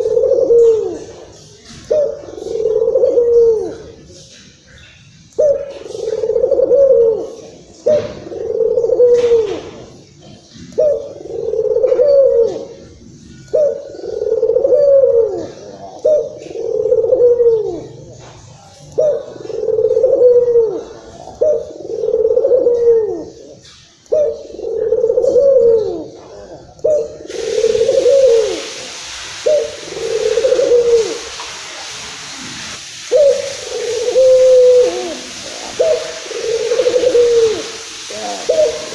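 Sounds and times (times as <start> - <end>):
dove cooing: 0.0 - 32.0, 33.0 - 38.9.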